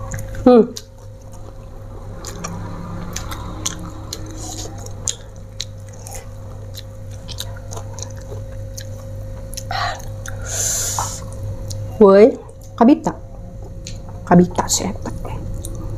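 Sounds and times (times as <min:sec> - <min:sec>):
person chewing leafy greens: 0:00.0 - 0:11.8.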